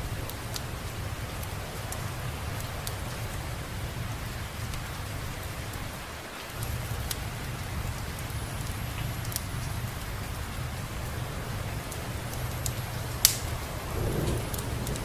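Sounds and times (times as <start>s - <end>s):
steady rain: 0.0s - 15.0s
constant low rumble: 6.6s - 15.0s.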